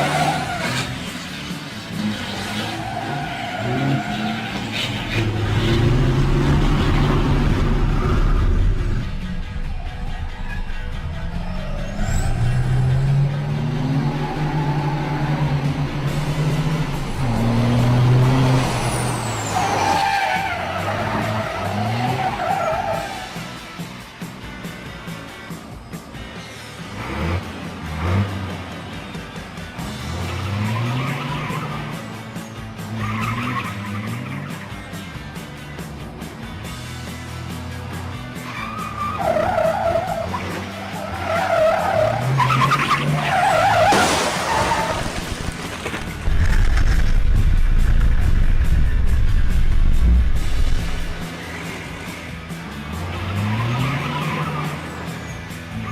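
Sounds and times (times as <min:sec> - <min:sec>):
truck engine drone: 0:00.0 - 0:55.9
wavering squeal: 0:09.5 - 0:13.2.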